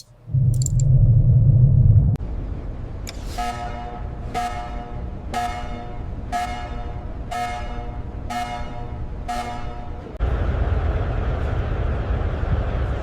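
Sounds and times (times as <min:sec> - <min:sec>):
low rumble: 0:00.0 - 0:03.2, 0:10.0 - 0:13.0
loud rumbling noise: 0:00.2 - 0:03.1, 0:09.9 - 0:13.0
horn-like tone: 0:03.3 - 0:10.2.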